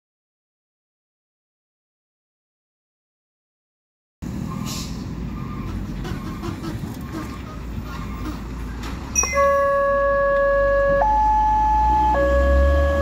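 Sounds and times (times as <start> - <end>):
traffic rumble: 4.2 - 13.0
two-tone electronic siren: 9.2 - 13.0.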